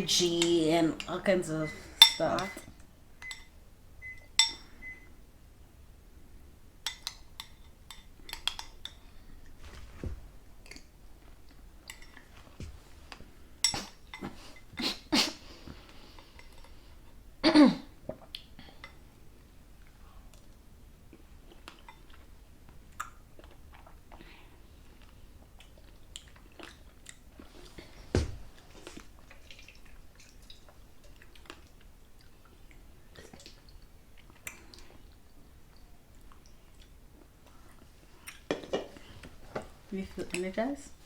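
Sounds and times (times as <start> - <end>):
spoon clinking against bowl: 2.0 - 2.6, 3.2 - 3.6, 4.4 - 4.7.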